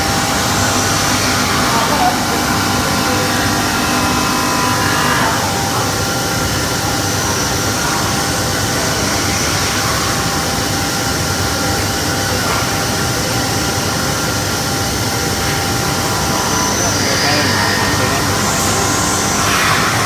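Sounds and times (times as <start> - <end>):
machine drone and hiss: 0.0 - 20.0.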